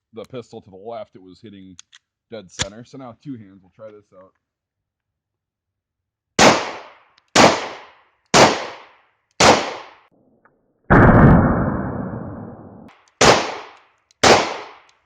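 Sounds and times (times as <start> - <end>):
pistol shots: 6.4 - 10.1, 13.2 - 15.0
loud noise: 10.9 - 12.9.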